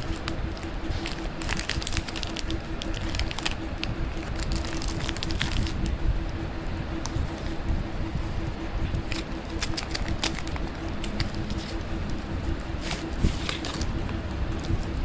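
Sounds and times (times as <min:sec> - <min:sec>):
candy wrappers crinkling: 0:00.0 - 0:05.9, 0:09.1 - 0:11.8
steady low rumble: 0:00.0 - 0:15.0.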